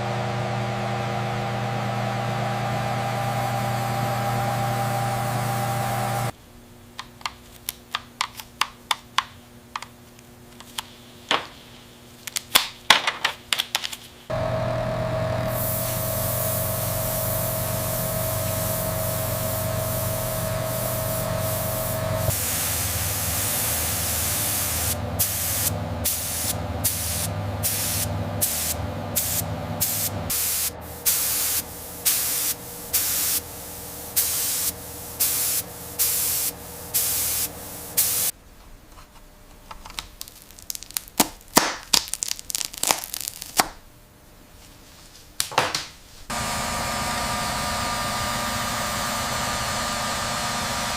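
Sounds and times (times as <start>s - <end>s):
factory machinery humming: 0.0s - 6.4s, 14.3s - 38.4s, 46.3s - 50.9s
hissing spray bursts: 15.5s - 38.4s.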